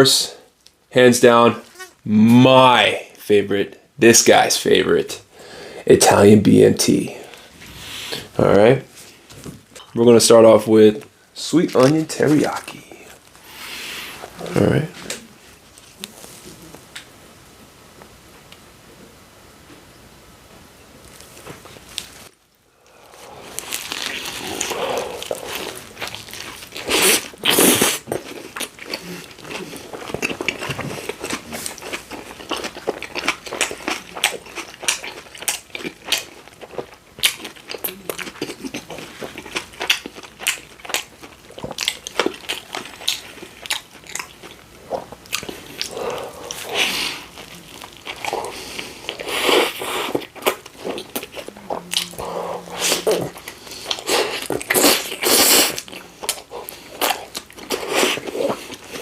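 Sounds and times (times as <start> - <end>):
person chewing food: 21.1 - 59.0.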